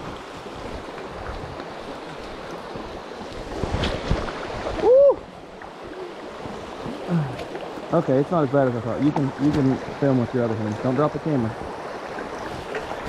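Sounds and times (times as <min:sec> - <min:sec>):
creek water rushing: 0:00.0 - 0:13.0
person exclaiming: 0:04.8 - 0:05.2.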